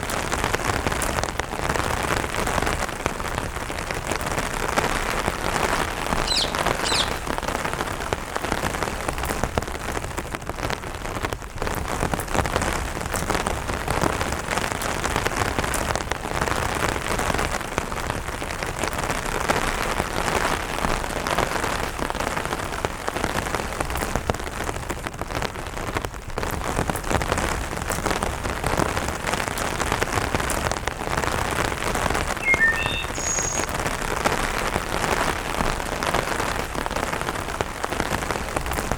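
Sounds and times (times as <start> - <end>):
rain on an umbrella: 0.0 - 38.9
bird chirps: 6.2 - 7.5, 32.4 - 34.0.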